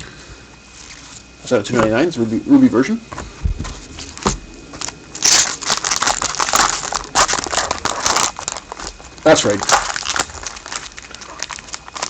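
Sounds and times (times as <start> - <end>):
wrapper crinkling: 4.0 - 12.0.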